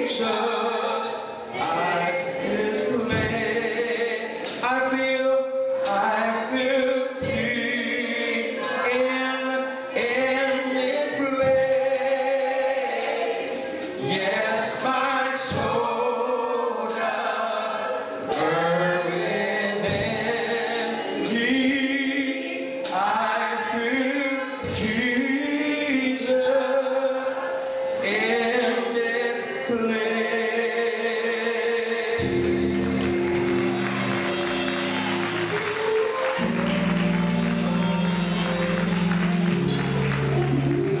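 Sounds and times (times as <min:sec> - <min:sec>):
gospel choir singing: 0:00.0 - 0:41.0
sharp percussion hits: 0:01.5 - 0:04.7, 0:32.1 - 0:41.0
instruments holding chords: 0:32.0 - 0:41.0.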